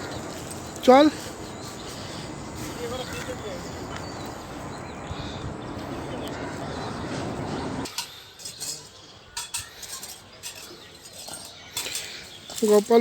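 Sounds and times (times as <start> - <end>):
low rumbling rustling noise: 0.0 - 7.9
small hard objects clinking: 7.9 - 13.0.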